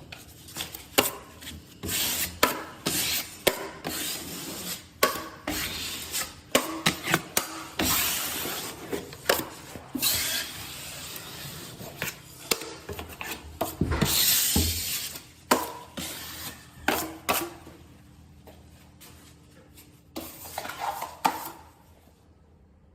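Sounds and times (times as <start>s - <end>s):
taping knife scraping compound: 0.1s - 17.6s.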